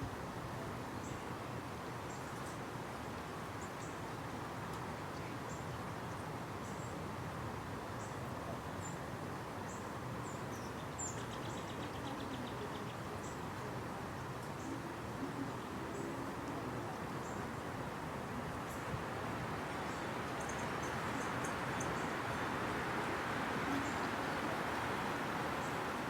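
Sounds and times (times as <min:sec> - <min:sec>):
small birds chirping: 0:19.7 - 0:26.0.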